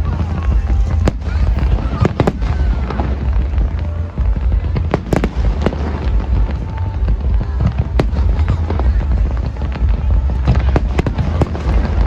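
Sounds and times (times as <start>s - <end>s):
fireworks booming: 0.0s - 12.0s
fireworks cracking: 0.0s - 12.0s.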